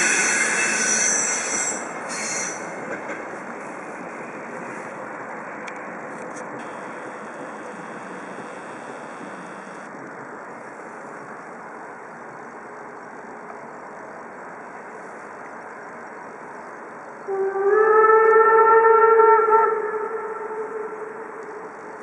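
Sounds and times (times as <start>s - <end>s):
steam locomotive whistle: 0.0s - 2.6s, 17.3s - 21.7s
train running on tracks: 0.0s - 22.0s.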